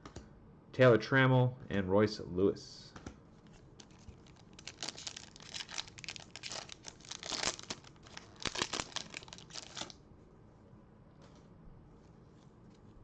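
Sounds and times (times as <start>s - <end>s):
foil wrapper crinkling and tearing: 3.8s - 10.0s.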